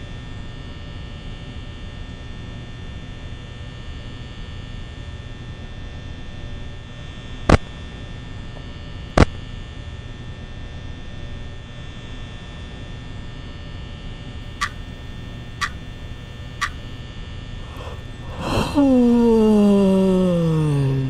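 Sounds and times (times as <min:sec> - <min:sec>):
steady electrical hum: 0:13.3 - 0:21.0.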